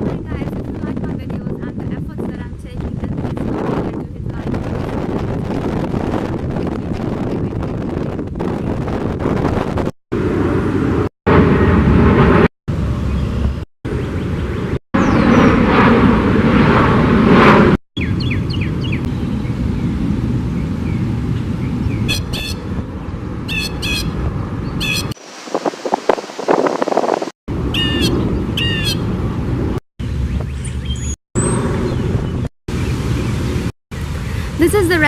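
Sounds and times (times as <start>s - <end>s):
rushing outdoor noise: 0.0s - 35.0s
birds chirping: 13.0s - 15.6s, 18.0s - 20.0s, 20.6s - 25.2s, 27.7s - 29.1s, 30.0s - 35.0s.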